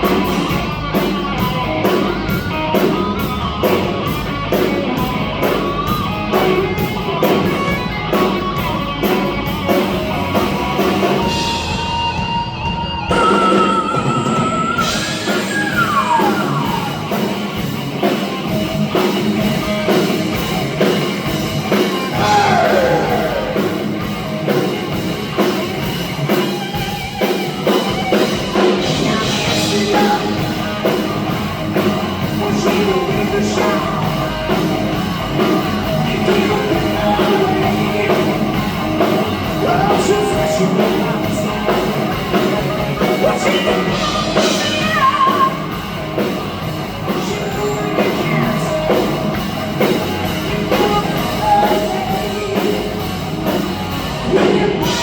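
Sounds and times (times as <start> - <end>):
live rock band playing: 0.0 - 55.0
person singing: 13.1 - 17.3, 22.0 - 24.0, 28.6 - 31.1, 32.2 - 34.7, 35.4 - 45.8, 47.0 - 49.5, 50.4 - 53.2, 54.1 - 55.0.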